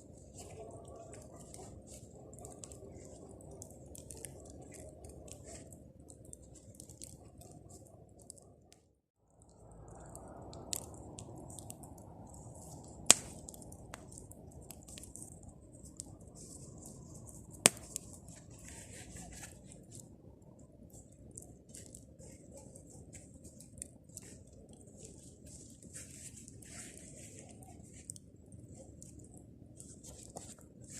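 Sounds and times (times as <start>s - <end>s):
small crackles of fire: 0.0s - 30.9s
bonfire flame rushing: 9.4s - 20.2s.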